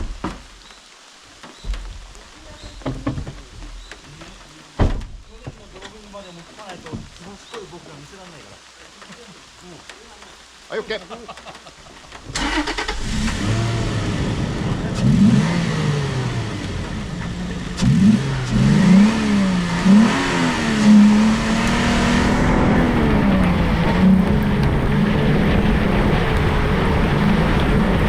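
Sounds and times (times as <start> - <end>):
engine revving hard: 12.4 - 28.0.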